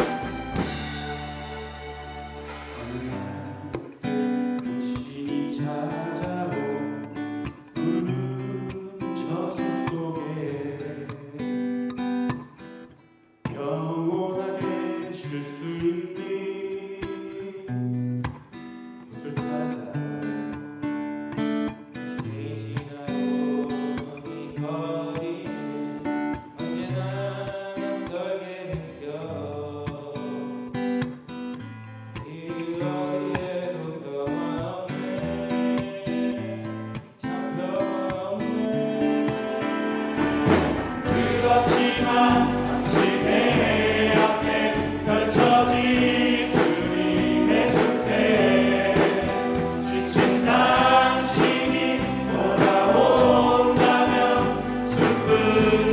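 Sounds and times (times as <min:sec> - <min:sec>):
acoustic guitar: 0:00.0 - 0:55.9
men singing a hymn in harmony: 0:37.3 - 0:55.9.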